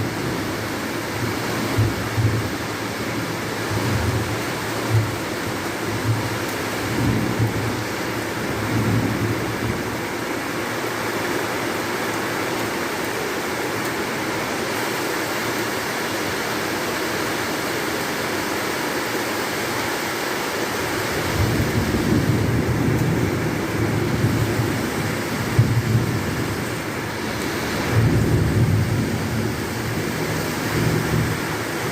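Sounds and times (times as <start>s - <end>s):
heavy rain pouring: 0.0s - 31.9s.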